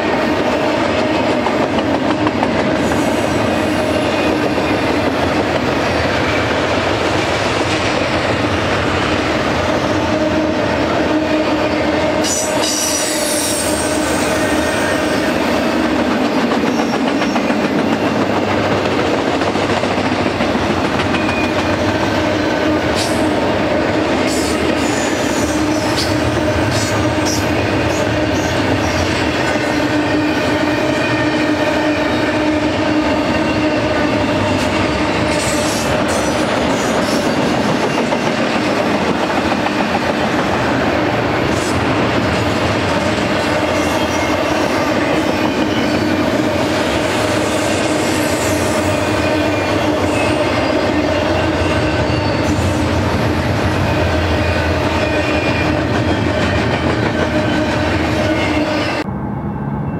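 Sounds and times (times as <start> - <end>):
freight train rumble and clatter: 0.0 - 59.9
high wheel squeals: 12.2 - 15.4, 47.1 - 59.0.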